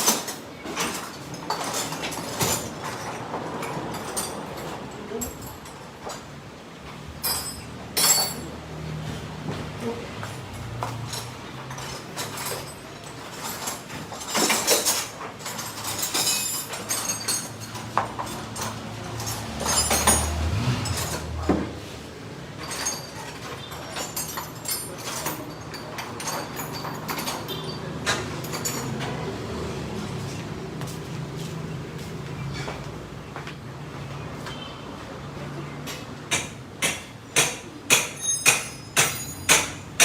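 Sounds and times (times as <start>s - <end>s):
metal tools clinking and knocking: 0.0s - 6.5s, 7.1s - 8.7s, 10.2s - 29.4s, 35.9s - 40.0s.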